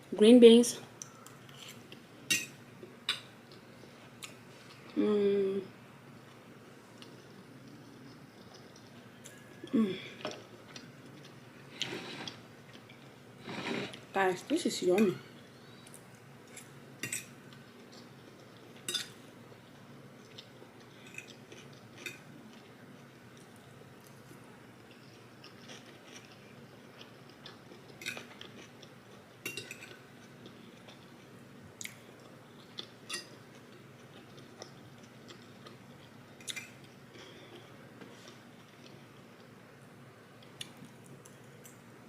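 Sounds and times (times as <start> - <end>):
faint steady hum: 0.0 - 42.0
soft chewing and biting: 6.2 - 13.2, 15.8 - 39.6.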